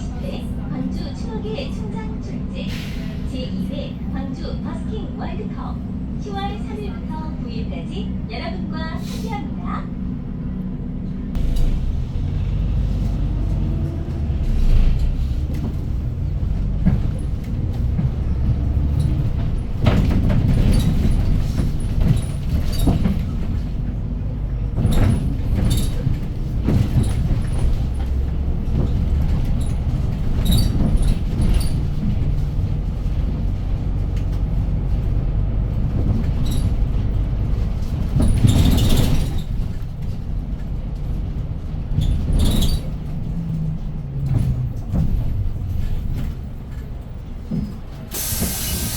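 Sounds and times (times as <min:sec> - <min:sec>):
bus engine and road rumble: 0:00.0 - 0:48.9
rattles and clicks: 0:11.4 - 0:48.9
brief hiss: 0:48.1 - 0:48.9.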